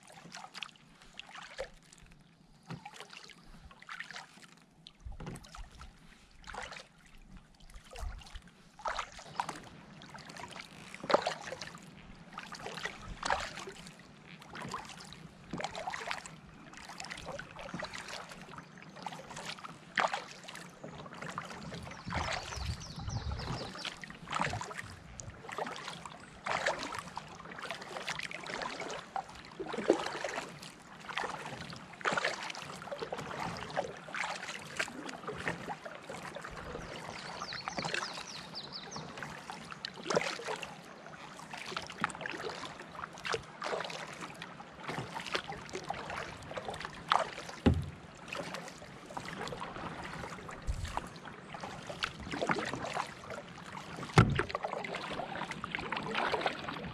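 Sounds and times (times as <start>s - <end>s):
paddle splashing in water: 0.0s - 56.9s
dull low knock: 47.6s - 48.0s, 54.2s - 54.6s.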